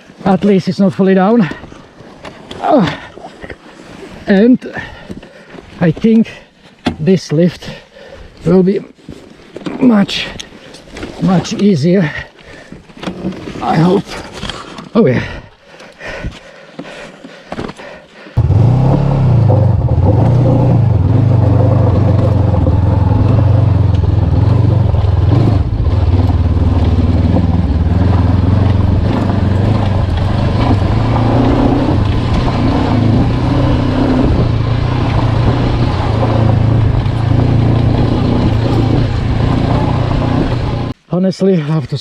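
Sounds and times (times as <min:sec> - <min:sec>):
motorcycle engine running: 0:18.4 - 0:41.0.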